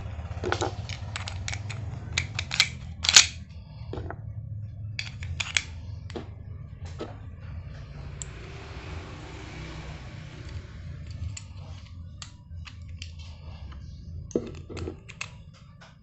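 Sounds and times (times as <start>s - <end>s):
steady low hum: 0.0s - 16.0s
small plastic clicks and clacks: 0.4s - 4.1s, 11.1s - 16.0s.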